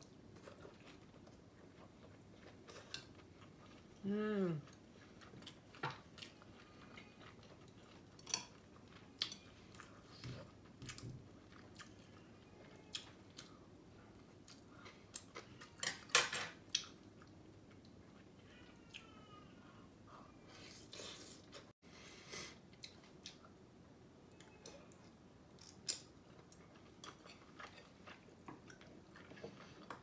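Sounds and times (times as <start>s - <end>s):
person chewing: 0.0s - 16.1s, 22.6s - 23.6s, 24.3s - 30.0s.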